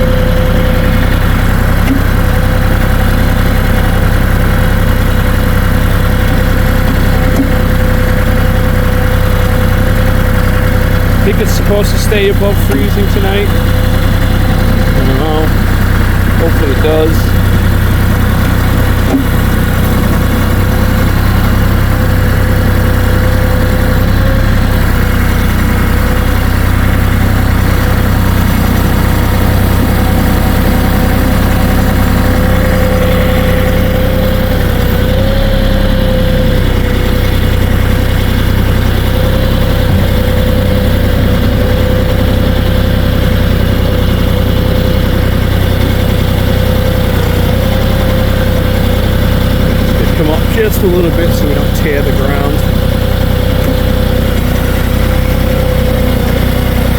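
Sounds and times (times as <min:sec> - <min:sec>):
steady whine: 0:00.0 - 0:46.0, 0:48.2 - 0:56.1
tractor diesel engine running: 0:00.0 - 0:56.9.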